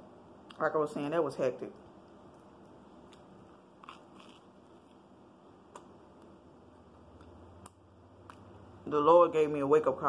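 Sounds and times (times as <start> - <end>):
crunching and chewing: 2.3 - 5.0
crisp crust crackling: 2.5 - 5.1.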